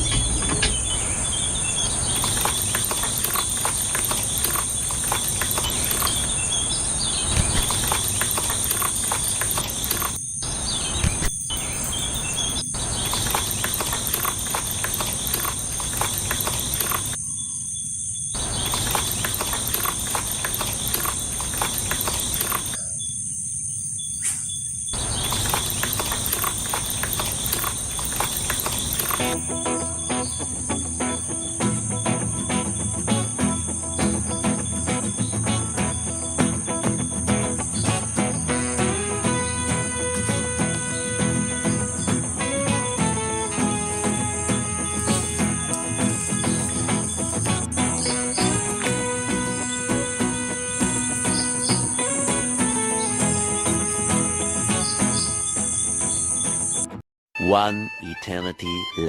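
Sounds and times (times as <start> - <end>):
crickets trilling: 0.0 - 56.9
small clicking and scraping: 2.0 - 6.4, 7.3 - 10.2, 11.0 - 17.2, 18.4 - 22.8, 25.0 - 29.4.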